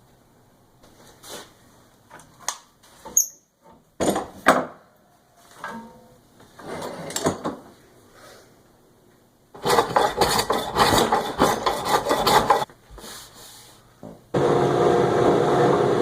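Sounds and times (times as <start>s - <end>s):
hand scraping wood: 9.6s - 13.6s.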